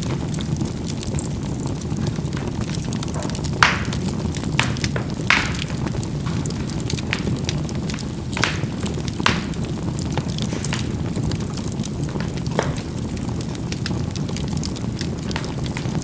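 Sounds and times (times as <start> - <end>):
coals popping and crackling: 0.0 - 16.0
low rumble of fire: 0.0 - 16.0.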